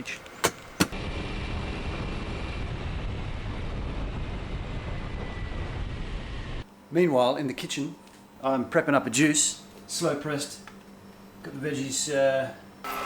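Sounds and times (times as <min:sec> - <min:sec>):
motorbike engine: 0:00.0 - 0:01.0
sharp clicks: 0:00.0 - 0:01.0.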